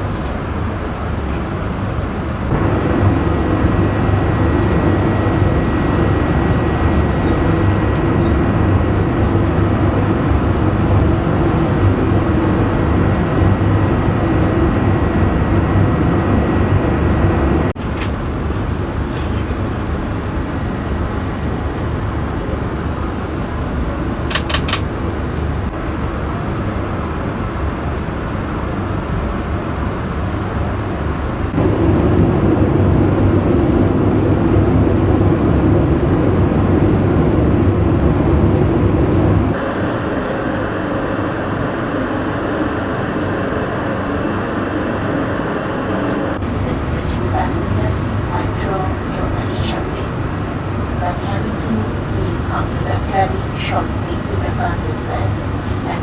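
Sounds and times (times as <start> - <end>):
airliner cabin roar: 0.0 - 56.0
quick clicks: 24.3 - 24.9.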